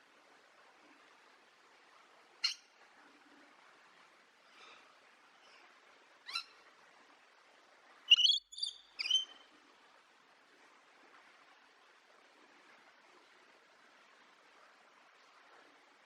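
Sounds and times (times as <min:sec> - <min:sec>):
bird calls: 0:08.1 - 0:09.4.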